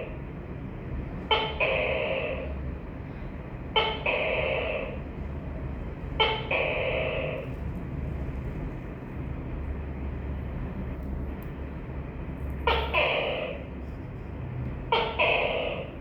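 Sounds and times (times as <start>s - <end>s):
steady low hum: 0.0s - 16.0s
gecko calling: 6.2s - 7.5s, 12.6s - 13.7s, 14.9s - 16.0s.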